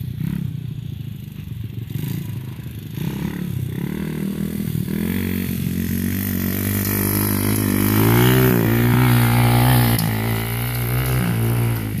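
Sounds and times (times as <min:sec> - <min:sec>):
dirt bike engine revving: 0:01.8 - 0:12.0.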